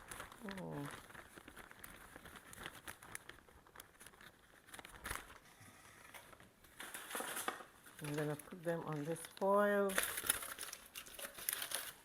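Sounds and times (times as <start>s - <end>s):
flour rustling and crinkling: 0.0s - 12.0s.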